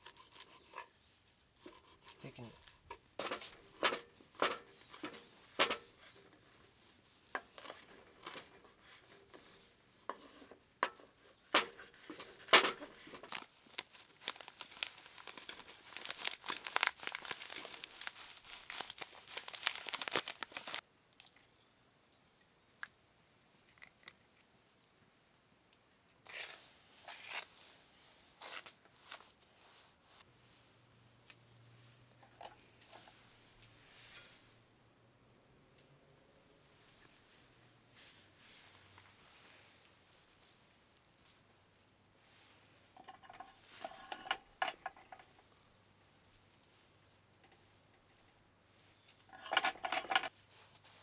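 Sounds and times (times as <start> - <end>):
crinkling and tearing handling: 0.0 - 21.5
dense crackles: 13.0 - 20.8.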